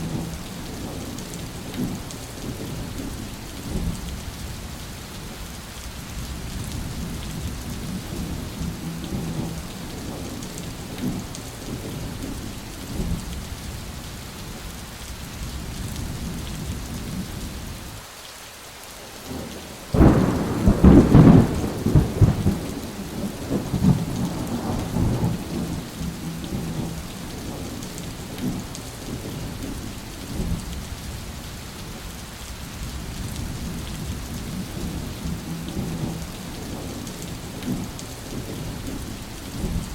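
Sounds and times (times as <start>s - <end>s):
steady rain: 0.0s - 39.9s
rolling thunder: 19.3s - 30.7s, 33.0s - 39.0s
loud thunderclap: 19.9s - 27.7s.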